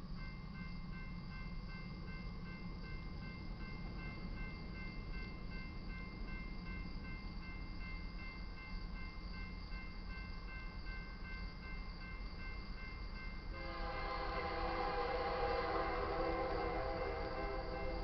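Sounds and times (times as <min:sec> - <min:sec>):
high ringing bell: 0:00.2 - 0:18.0
locomotive air horn chord: 0:13.5 - 0:18.0.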